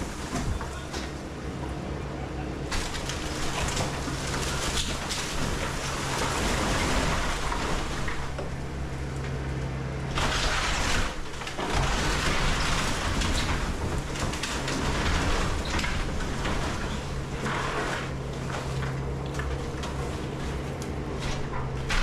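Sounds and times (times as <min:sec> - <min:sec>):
wood and debris crackling: 0:00.0 - 0:01.8, 0:02.6 - 0:22.0
excavator diesel engine running: 0:00.0 - 0:22.0.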